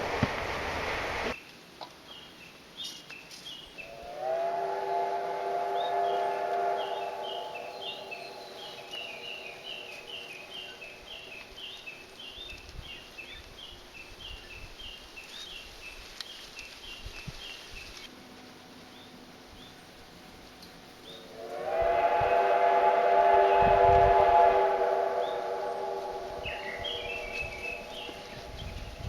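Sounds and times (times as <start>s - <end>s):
steam locomotive whistle: 3.8s - 11.2s, 18.2s - 29.0s
high falling chirps: 6.0s - 11.5s, 25.1s - 29.0s.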